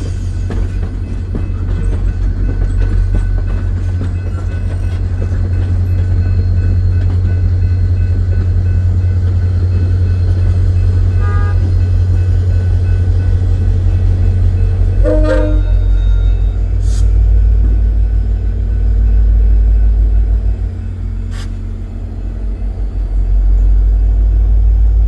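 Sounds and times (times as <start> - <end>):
diesel locomotive rumble: 0.0 - 25.0
short horn tone: 15.0 - 16.1.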